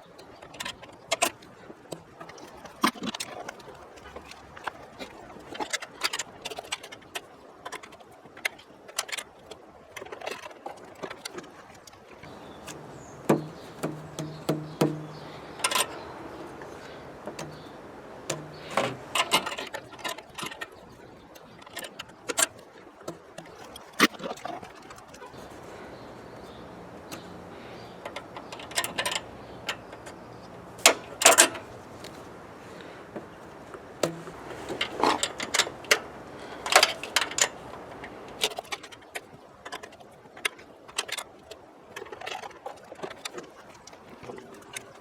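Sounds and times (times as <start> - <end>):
sharp clicks and knocks: 12.2 - 25.5, 26.3 - 32.2, 33.1 - 41.3.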